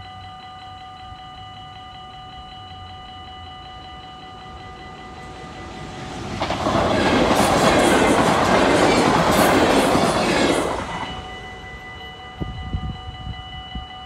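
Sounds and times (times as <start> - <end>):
level crossing bells ringing: 0.0 - 14.0
train rushing past: 4.3 - 13.2.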